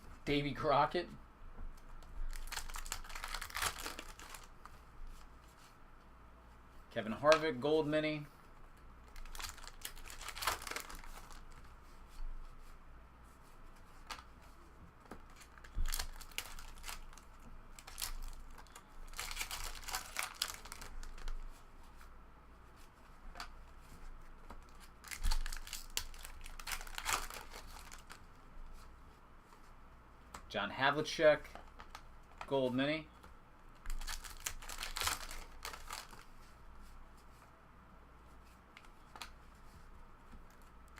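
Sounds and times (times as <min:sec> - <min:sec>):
card wrappers tearing and crinkling: 0:02.3 - 0:04.5, 0:09.1 - 0:11.5, 0:15.3 - 0:21.3, 0:24.7 - 0:28.3, 0:33.8 - 0:36.3
cards being handled: 0:33.2 - 0:36.5.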